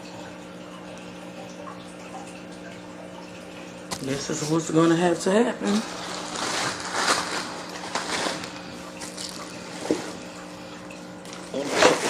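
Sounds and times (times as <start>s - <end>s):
faint steady hum: 0.0s - 12.0s
cardboard and plastic rustling: 5.6s - 10.2s, 11.3s - 12.0s.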